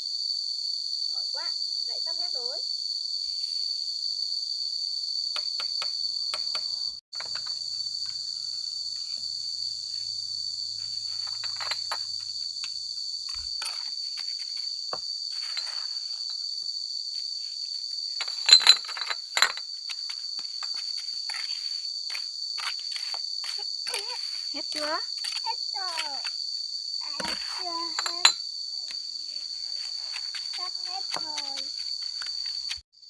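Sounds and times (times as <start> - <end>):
insect chorus: 0.0 - 33.0
glass bottles clinking: 18.2 - 19.7, 28.0 - 28.4.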